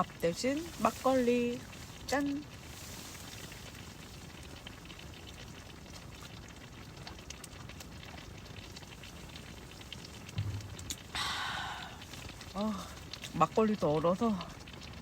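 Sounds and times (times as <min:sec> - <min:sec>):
faint crackle of ticks: 0:00.0 - 0:15.0
breathy exhale: 0:11.1 - 0:12.0.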